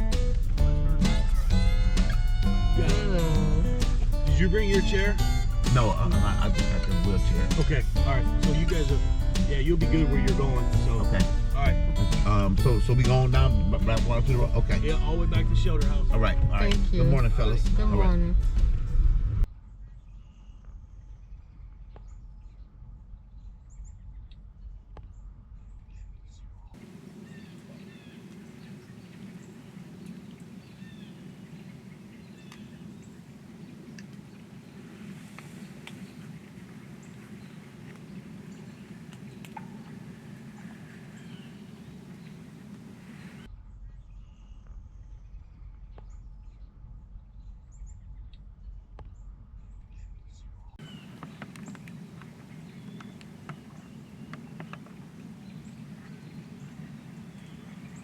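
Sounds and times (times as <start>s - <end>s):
low steady outdoor rumble: 0.0s - 58.0s
high bird chirps: 26.8s - 43.5s, 50.8s - 58.0s.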